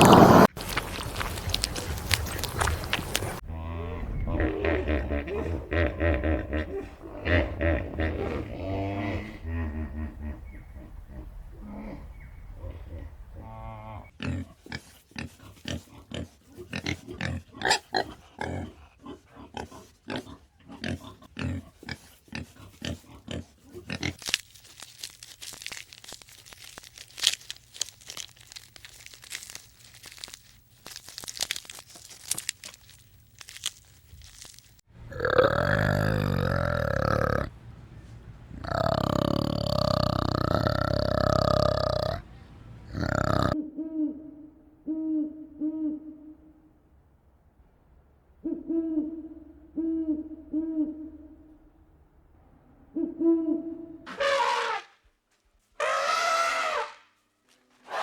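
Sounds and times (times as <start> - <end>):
animal grunting: 0.0 - 0.8, 1.7 - 24.2, 35.0 - 43.6
long pitched animal calls: 35.0 - 37.6, 38.6 - 44.3.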